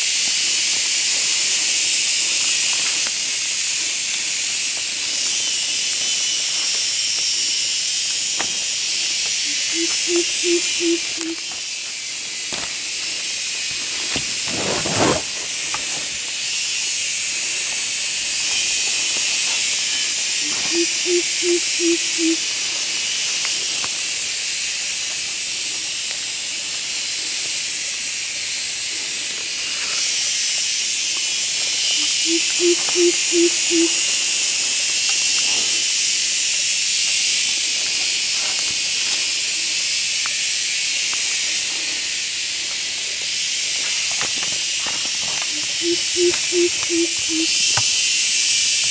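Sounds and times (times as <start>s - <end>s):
insect chorus hissing: 0.0s - 48.9s
low hooting notes: 9.5s - 11.5s, 20.4s - 22.4s, 32.1s - 34.1s, 45.6s - 47.6s.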